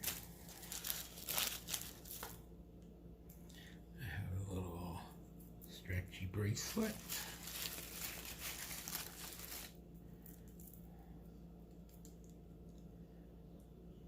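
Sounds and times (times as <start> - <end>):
packaging crinkling: 0.0 - 2.4, 6.6 - 10.8.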